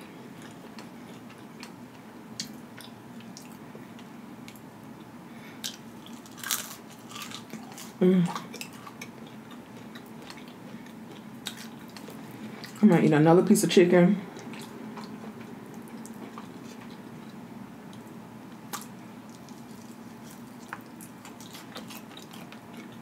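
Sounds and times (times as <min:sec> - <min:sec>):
soft chewing: 0:00.0 - 0:12.9, 0:14.2 - 0:23.0
person humming briefly: 0:08.0 - 0:08.5.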